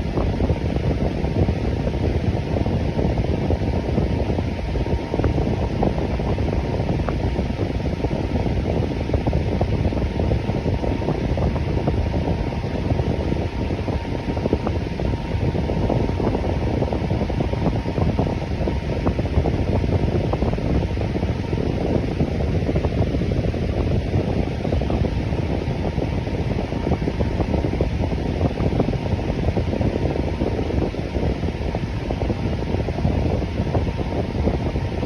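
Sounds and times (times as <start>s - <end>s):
electric fan running: 0.0s - 35.0s
faint steady hum: 0.0s - 35.0s.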